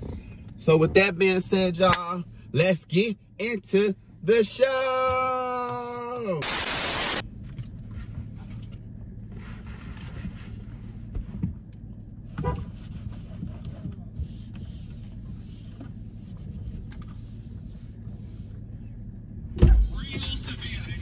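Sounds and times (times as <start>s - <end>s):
loud thump: 19.6s - 20.0s.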